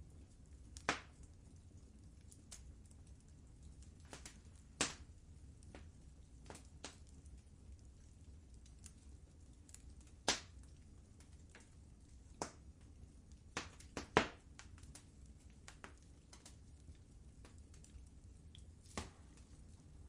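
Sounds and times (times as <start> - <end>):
low steady rumble: 0.0 - 20.0
wood fire crackling: 0.0 - 20.0
sharp fire pops: 0.8 - 1.3, 4.0 - 5.1, 5.7 - 7.1, 9.7 - 11.7, 12.3 - 12.7, 13.5 - 16.6, 18.8 - 19.5.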